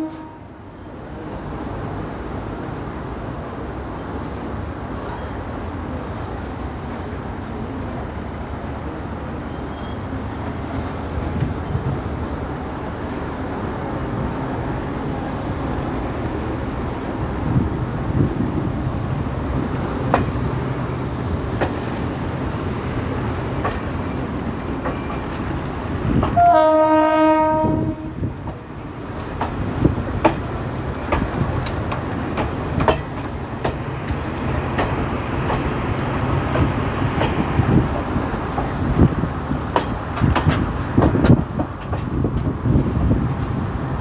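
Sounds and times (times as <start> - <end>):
train horn: 0.0 - 0.7, 26.2 - 28.3
train rumbling: 0.0 - 44.0
train wheels clicking and knocking: 13.1 - 26.6, 27.6 - 43.9.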